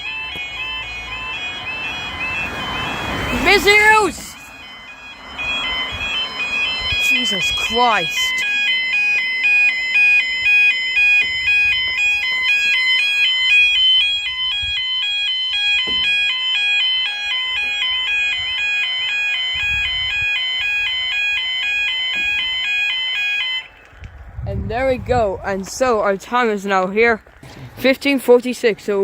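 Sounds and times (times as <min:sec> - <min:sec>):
two-tone warning alarm warble: 0:00.0 - 0:23.9.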